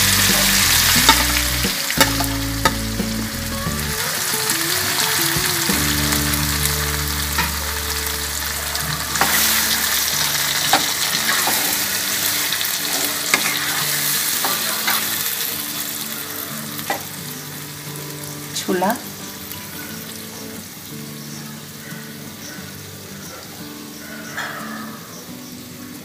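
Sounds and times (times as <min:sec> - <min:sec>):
vegetables sizzling in oil: 0:00.0 - 0:23.2
spatula scraping and knocking pan: 0:00.4 - 0:03.2.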